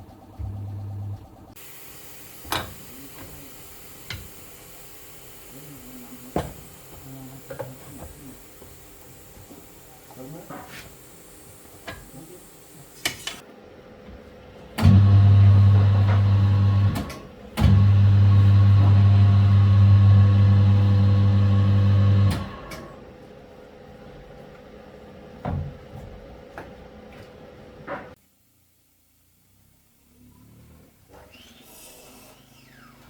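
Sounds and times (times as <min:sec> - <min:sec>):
machine humming: 0:14.8 - 0:23.0.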